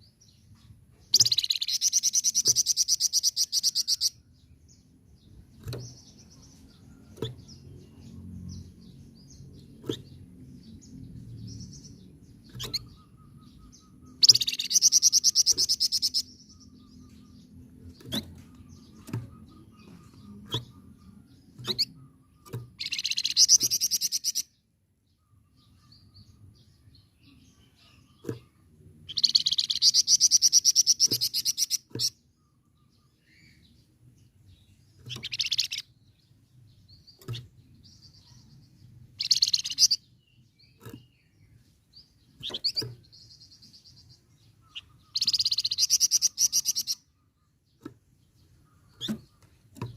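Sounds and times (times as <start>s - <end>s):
sharp bird chips: 1.1s - 4.2s, 11.1s - 24.5s, 28.1s - 32.3s, 35.0s - 36.0s, 37.0s - 47.2s.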